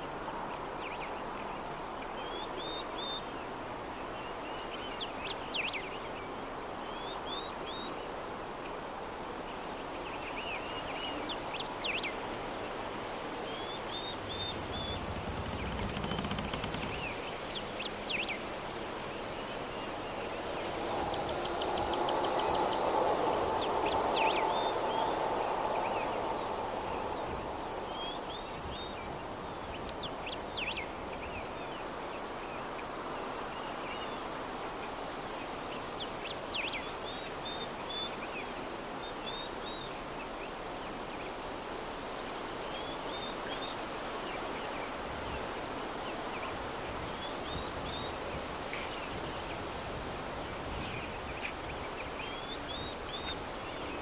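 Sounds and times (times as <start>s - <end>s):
soft breeze: 0.0s - 54.0s
birds chirping: 13.2s - 20.3s.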